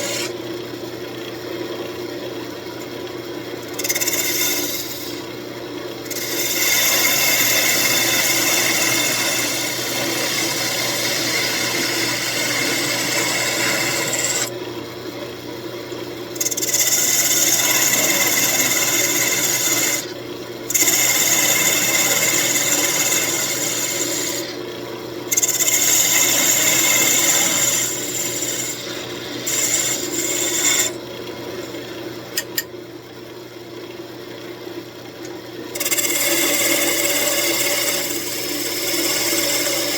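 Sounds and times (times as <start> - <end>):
turning tool cutting wood: 0.0 - 0.4, 3.6 - 5.4, 6.0 - 14.6, 16.3 - 24.6, 25.3 - 31.1, 35.7 - 39.9
wood lathe humming: 0.0 - 0.4, 3.6 - 14.6, 16.3 - 24.6, 25.3 - 32.1, 35.7 - 39.9.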